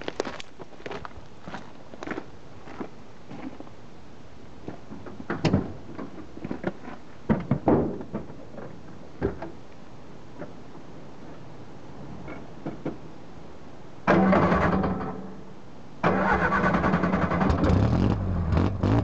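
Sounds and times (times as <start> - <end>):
clunks and knocks: 4.9 - 9.6.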